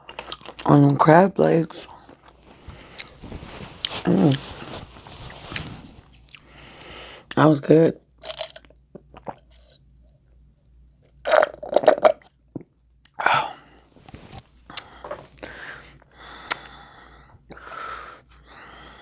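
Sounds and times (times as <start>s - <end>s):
chewing and smacking: 0.0s - 1.0s.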